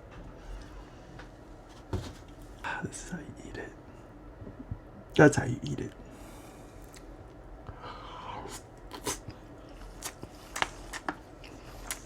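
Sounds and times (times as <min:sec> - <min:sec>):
chewing food: 0:08.5 - 0:12.0.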